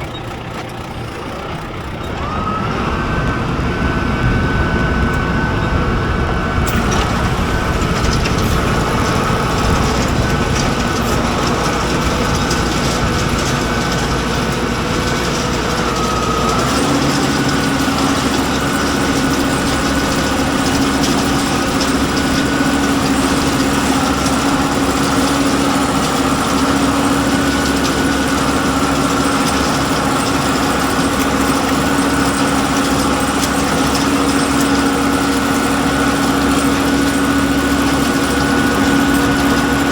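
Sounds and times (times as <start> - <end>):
high machinery whine: 0.0 - 39.9
tractor engine running: 0.0 - 39.9
strong steady hum: 1.0 - 31.4.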